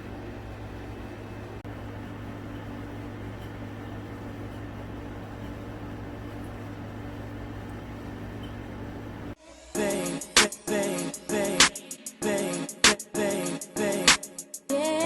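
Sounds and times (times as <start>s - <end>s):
appliance motor humming: 0.0s - 9.4s.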